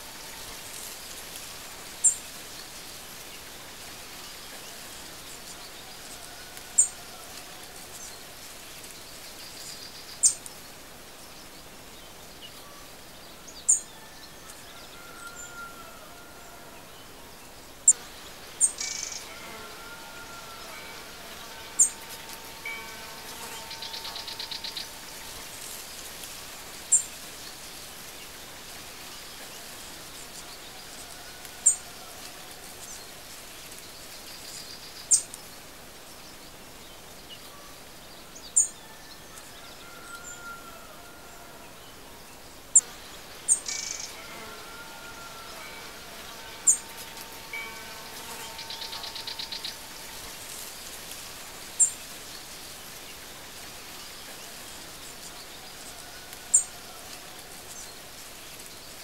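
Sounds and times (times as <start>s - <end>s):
steady hiss: 0.0s - 39.5s, 41.7s - 59.0s
birds chirping: 42.3s - 53.2s
buzzy bird trills: 43.5s - 50.7s.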